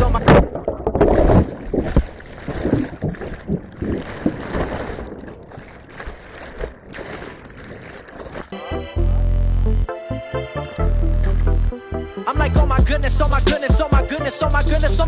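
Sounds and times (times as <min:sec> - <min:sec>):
water splashing and rushing: 0:00.0 - 0:09.1
wind buffeting microphone: 0:00.2 - 0:08.4.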